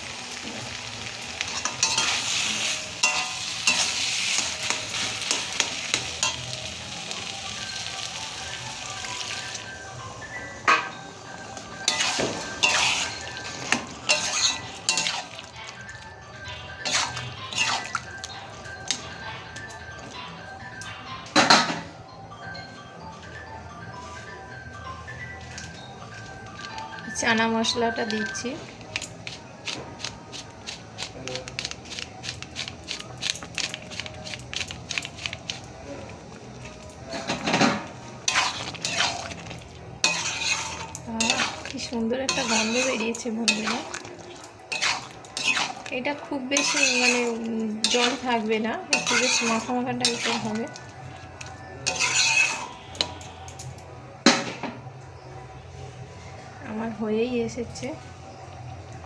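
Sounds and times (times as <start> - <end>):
background music: 0.0 - 59.0
metal spoon scraping pan: 1.5 - 2.4, 11.8 - 15.4, 16.8 - 18.0, 38.2 - 50.8, 51.8 - 53.4.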